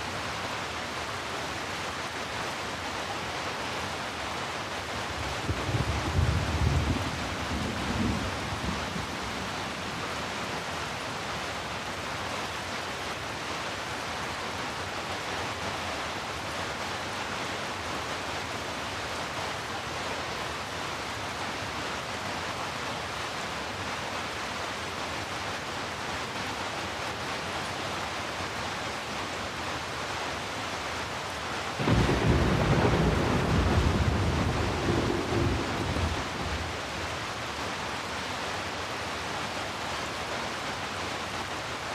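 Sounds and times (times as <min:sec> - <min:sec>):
steady rain falling: 0:00.0 - 0:41.9
deep thunder rumble: 0:05.3 - 0:09.3, 0:31.8 - 0:36.9.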